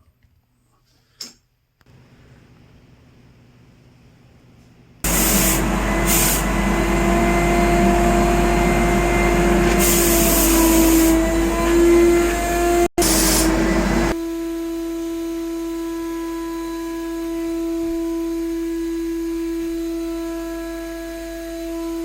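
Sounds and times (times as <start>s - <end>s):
air hissing: 5.1s - 11.6s, 13.0s - 14.2s
motor humming: 5.1s - 14.2s.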